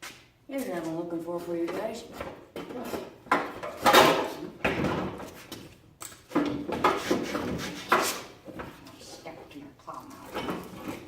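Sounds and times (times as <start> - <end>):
objects scraping and clattering: 1.8 - 9.4, 10.0 - 11.0.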